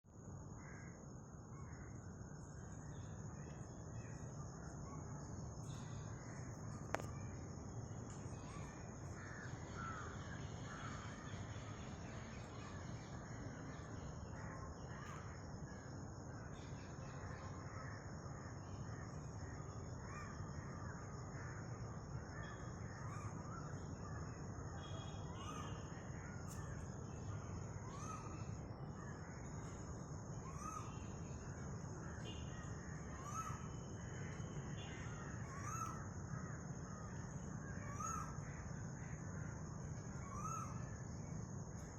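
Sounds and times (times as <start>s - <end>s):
cuckoo calling: 32.2s - 36.0s.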